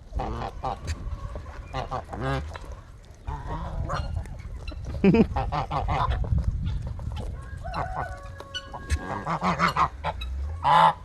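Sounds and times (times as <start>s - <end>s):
geese honking: 0.1s - 4.8s, 7.4s - 11.0s.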